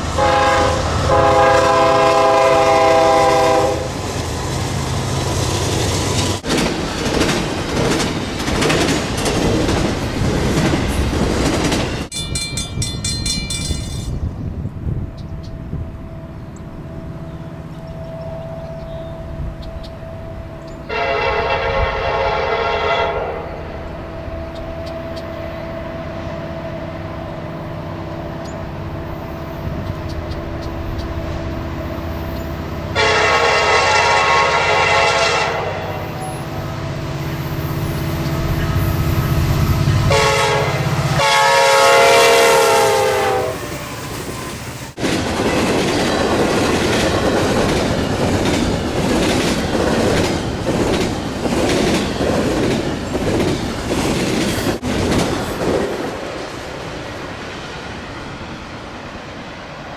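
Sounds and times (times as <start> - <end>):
locomotive engine rumbling: 0.0 - 59.8
train horn blasts: 0.1 - 4.0, 15.6 - 25.1, 32.8 - 44.4
train wheels clattering: 5.6 - 14.4, 43.7 - 56.7.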